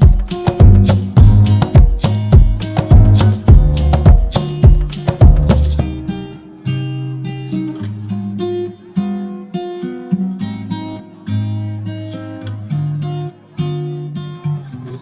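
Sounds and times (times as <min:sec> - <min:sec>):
drums: 0:00.0 - 0:05.8
acoustic guitar strumming: 0:00.0 - 0:15.0.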